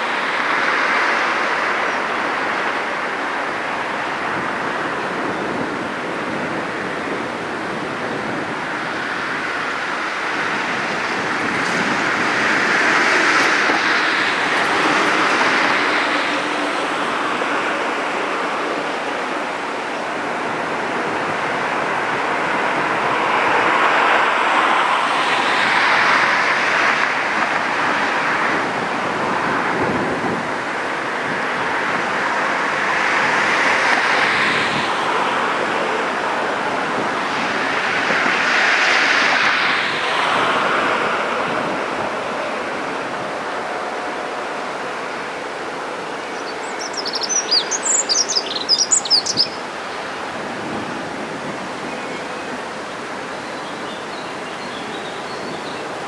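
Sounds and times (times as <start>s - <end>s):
wind rushing: 0.0s - 47.2s
bird chirping: 46.3s - 49.6s.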